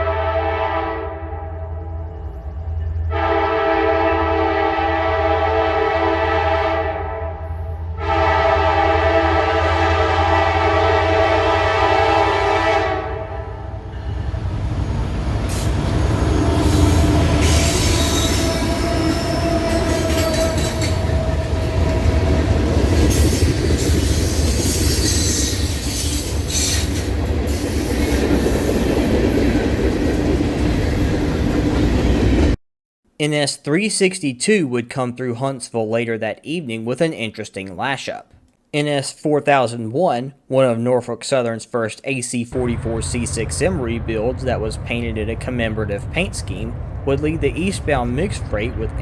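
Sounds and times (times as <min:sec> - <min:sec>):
locomotive air horn blasts: 0:00.0 - 0:01.8, 0:03.1 - 0:14.4, 0:15.4 - 0:23.4
train wheel and rail noise: 0:00.0 - 0:32.6, 0:42.6 - 0:49.0.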